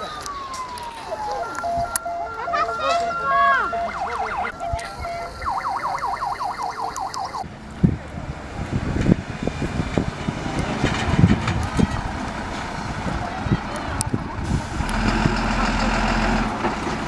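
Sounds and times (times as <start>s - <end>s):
fire engine siren yelping: 0.0s - 7.4s.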